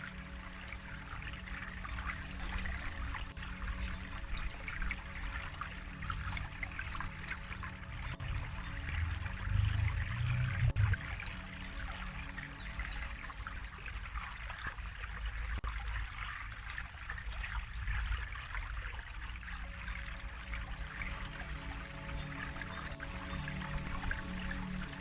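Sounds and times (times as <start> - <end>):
water babbling in a stream: 0.0 - 25.0
low rumble: 7.8 - 12.1.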